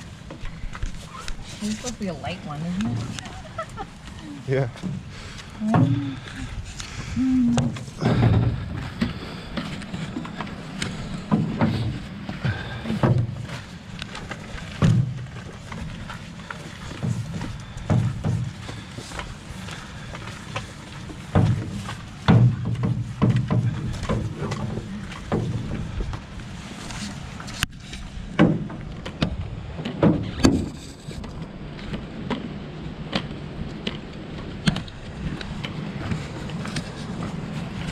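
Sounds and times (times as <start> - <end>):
footsteps on a trail: 0.0 - 28.2, 34.8 - 37.9
rustling: 0.0 - 28.2
dull thumps: 4.8 - 6.5, 7.2 - 10.4, 20.5 - 26.3.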